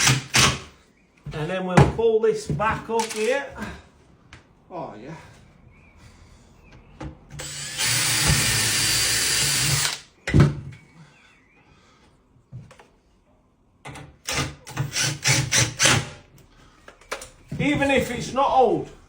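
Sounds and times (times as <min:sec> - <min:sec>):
power drill running: 0:07.4 - 0:10.1, 0:14.3 - 0:16.1.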